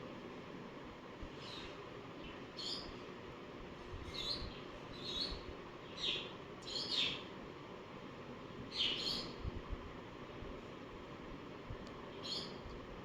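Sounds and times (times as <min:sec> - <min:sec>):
bird chirping: 0:04.1 - 0:07.2, 0:08.7 - 0:09.4, 0:12.2 - 0:12.6.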